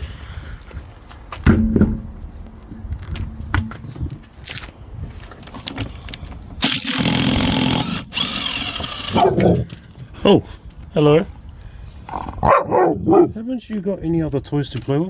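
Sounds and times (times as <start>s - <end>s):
tools clicking and knocking: 5.3s - 10.1s
power tool running: 6.6s - 9.8s.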